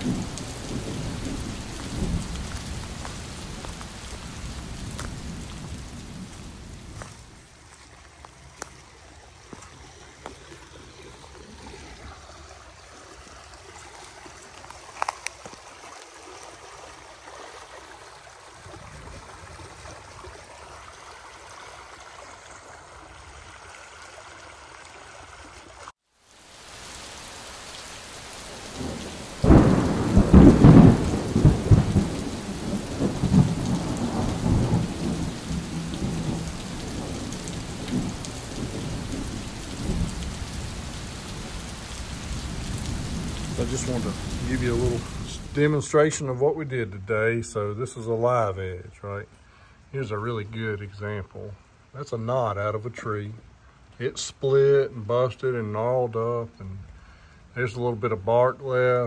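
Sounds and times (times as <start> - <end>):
rolling thunderclap: 0.0 - 7.4, 28.5 - 45.8
steady rain hiss: 0.0 - 59.0.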